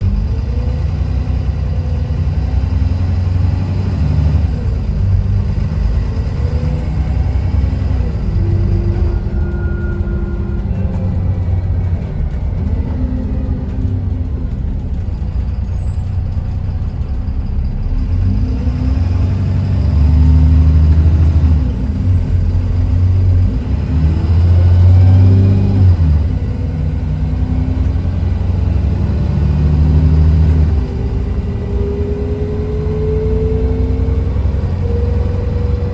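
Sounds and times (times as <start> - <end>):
bus diesel engine accelerating: 0.0 - 35.9.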